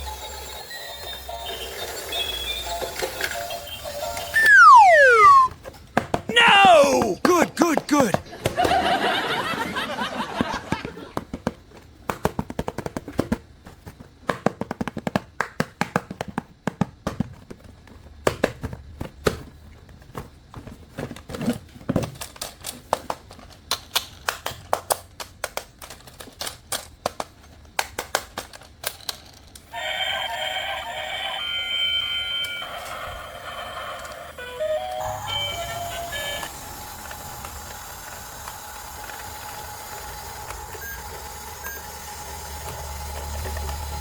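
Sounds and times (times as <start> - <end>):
toy electronic tune: 0.0 - 5.5, 29.8 - 33.7, 34.3 - 37.0, 40.7 - 43.2
plastic packaging clicks and taps: 21.9 - 29.2.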